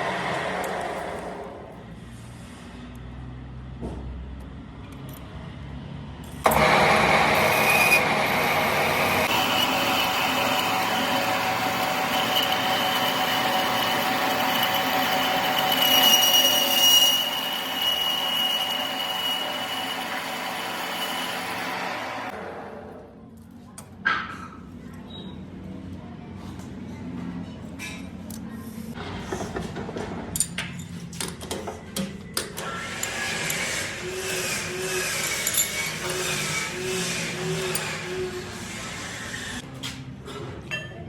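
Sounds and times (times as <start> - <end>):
workshop machine whining: 6.4 - 23.0.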